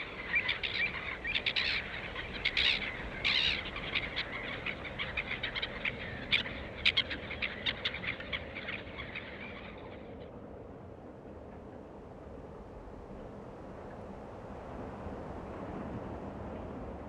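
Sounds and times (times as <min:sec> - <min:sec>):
bird chirping song: 0:00.0 - 0:10.1.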